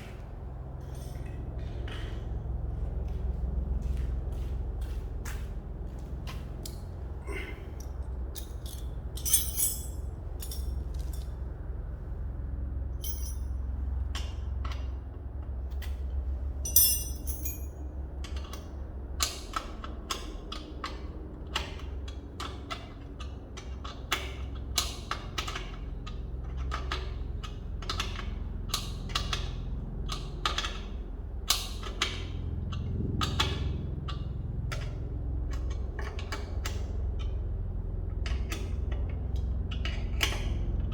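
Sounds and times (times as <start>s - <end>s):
low hum: 0.0s - 14.0s, 16.2s - 17.9s.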